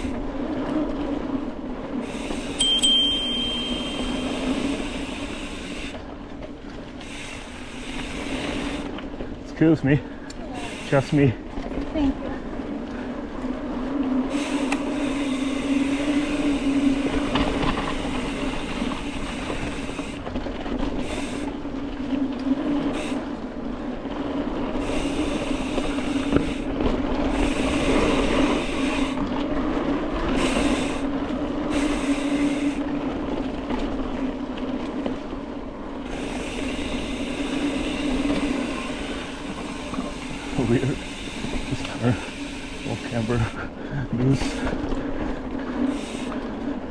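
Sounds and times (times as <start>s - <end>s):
bike rattle: 0.0s - 9.5s, 10.1s - 46.9s
tyre noise on dirt: 13.4s - 43.2s.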